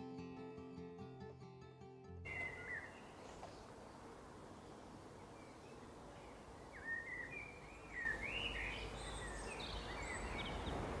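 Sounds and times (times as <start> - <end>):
background hiss: 2.3 - 11.0
small birds chirping: 2.3 - 11.0.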